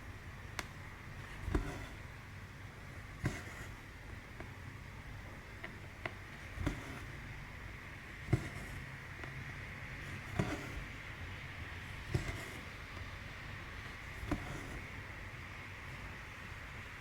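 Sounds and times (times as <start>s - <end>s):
needle tapping through cloth: 12.1s - 13.0s.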